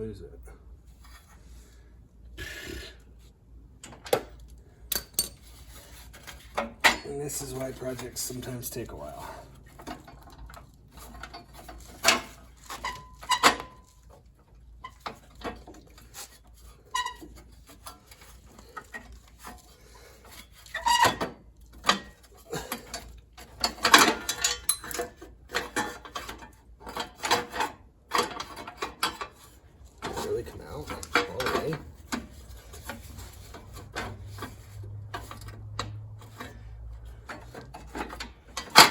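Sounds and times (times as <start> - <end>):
metal tools clinking: 4.9 - 5.6, 22.6 - 26.4, 28.2 - 38.9.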